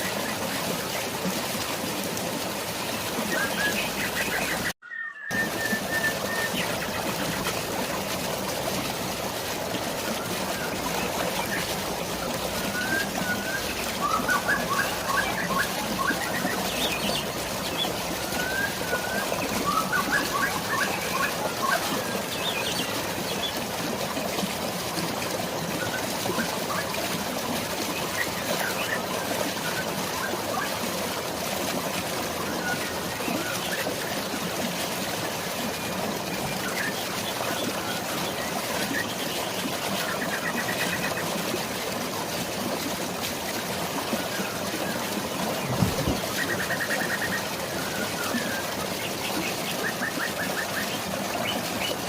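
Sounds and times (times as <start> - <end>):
rain and flowing water: 0.0 - 52.0
birds chirping: 3.1 - 7.9, 10.2 - 24.2, 44.2 - 52.0.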